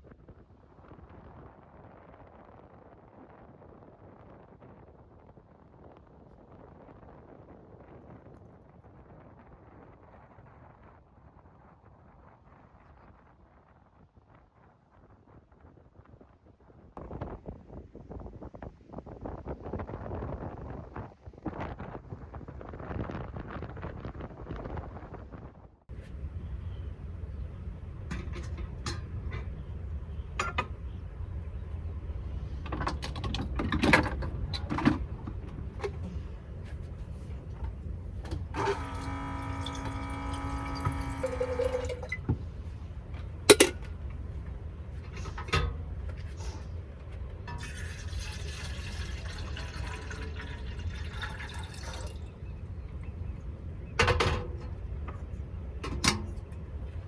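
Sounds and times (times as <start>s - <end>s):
knocks and clatters of handling: 28.1s - 29.6s, 32.6s - 38.7s, 43.2s - 44.0s, 45.0s - 47.8s
running or pouring water: 38.6s - 42.2s, 47.5s - 52.4s.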